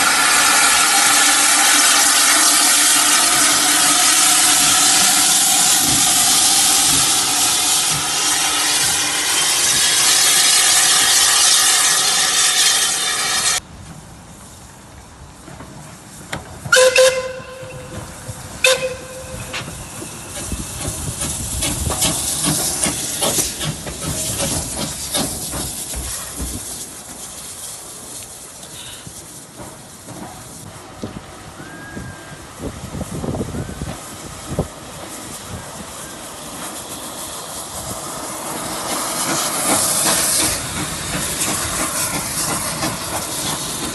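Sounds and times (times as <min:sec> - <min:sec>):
train whistle toots: 0:00.0 - 0:13.6, 0:16.7 - 0:20.1, 0:31.6 - 0:32.5
locomotive puffing and knocking: 0:00.0 - 0:14.1, 0:15.4 - 0:31.5, 0:32.6 - 0:43.9
steam locomotive venting steam: 0:00.0 - 0:43.9.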